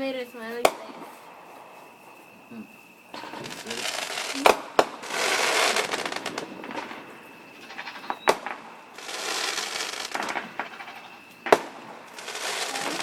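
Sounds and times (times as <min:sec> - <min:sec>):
firework bangs: 0:03.1 - 0:13.0
firework crackling: 0:03.1 - 0:13.0.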